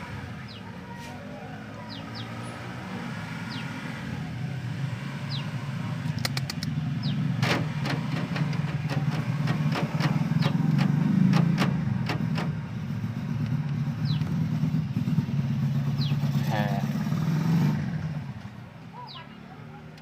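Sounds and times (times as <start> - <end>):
vehicle engine running: 3.5 - 20.0
sharp clicks: 6.1 - 6.8
high bird chirps: 6.3 - 7.4, 14.0 - 14.4, 15.9 - 16.4.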